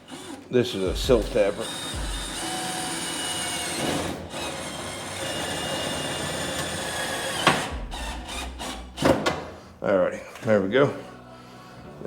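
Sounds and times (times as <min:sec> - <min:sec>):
power drill whining into metal: 0:00.0 - 0:09.5.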